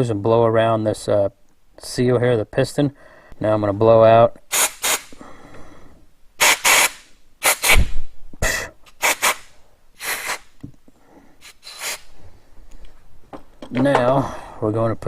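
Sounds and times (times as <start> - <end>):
compressed air blow gun hissing: 4.5 - 5.2, 6.4 - 10.6, 11.4 - 12.2.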